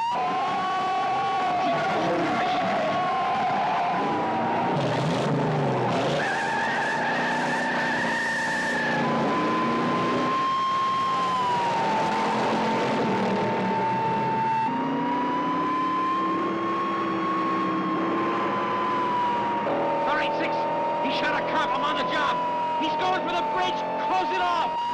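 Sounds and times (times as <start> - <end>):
car engines revving: 0.0 - 24.9
car tyres squealing: 0.2 - 11.5.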